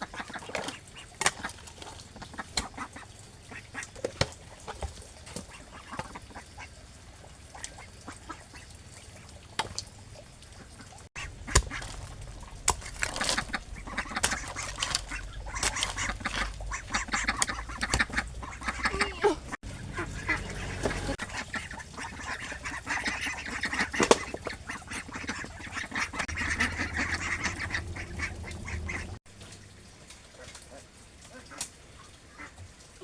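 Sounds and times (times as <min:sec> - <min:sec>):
ducks quacking: 0:00.0 - 0:01.6, 0:02.2 - 0:04.1, 0:05.3 - 0:06.8, 0:07.4 - 0:09.3, 0:10.6 - 0:29.2.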